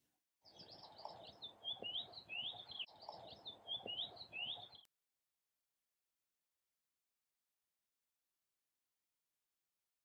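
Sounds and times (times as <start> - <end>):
small birds chirping and twittering: 0.4 - 4.9.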